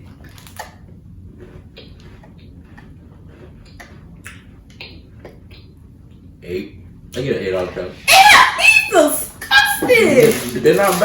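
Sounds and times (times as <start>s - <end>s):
person chewing crunchy cookie: 0.0s - 5.8s.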